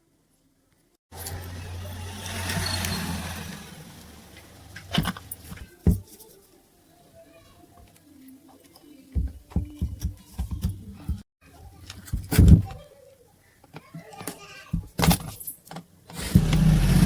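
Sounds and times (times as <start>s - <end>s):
hard objects knocking: 9.2s - 11.2s.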